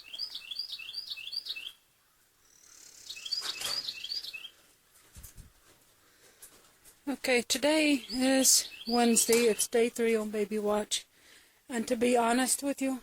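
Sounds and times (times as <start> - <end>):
songbird whistling: 0.0 - 1.8, 2.4 - 4.6, 8.0 - 9.7.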